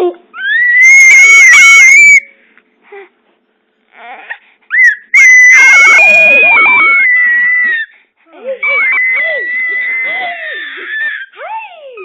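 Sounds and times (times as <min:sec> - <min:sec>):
baby screaming: 0:00.4 - 0:02.3, 0:04.0 - 0:07.9, 0:08.6 - 0:12.0.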